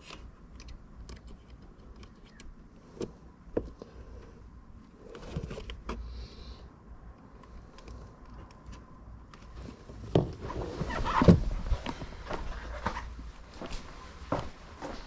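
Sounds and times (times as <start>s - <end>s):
small parts clicking and tapping: 0.0s - 3.9s
rattling and rustling: 9.5s - 13.3s.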